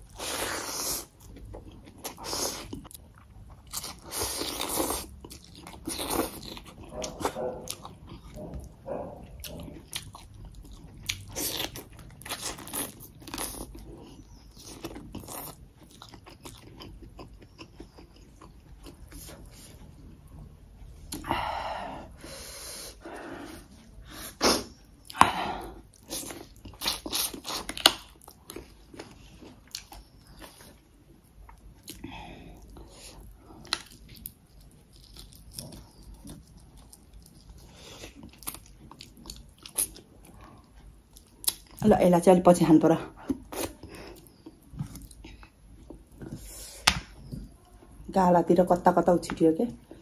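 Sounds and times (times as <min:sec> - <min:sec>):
person chewing food: 0:00.0 - 0:41.9, 0:43.1 - 0:48.1.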